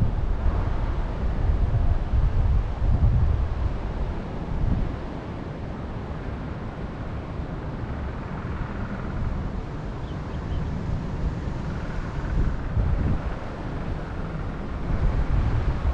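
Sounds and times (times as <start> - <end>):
wind buffeting microphone: 0.0 - 6.9, 7.9 - 15.9
faint bird chirps: 10.0 - 10.7.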